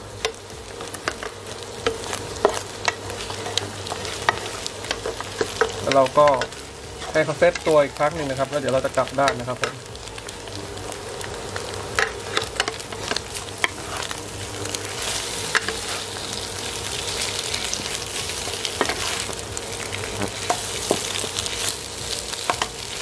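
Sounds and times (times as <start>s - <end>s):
food sizzling in oil: 0.0s - 23.0s
wooden spatula scraping wok: 0.8s - 9.8s, 12.0s - 23.0s.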